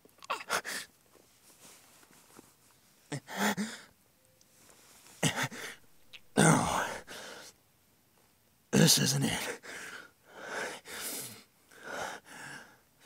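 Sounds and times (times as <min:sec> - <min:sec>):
man breathing heavily: 0:03.1 - 0:03.9, 0:05.2 - 0:07.6, 0:09.6 - 0:12.9
man groaning in pain: 0:05.2 - 0:07.2.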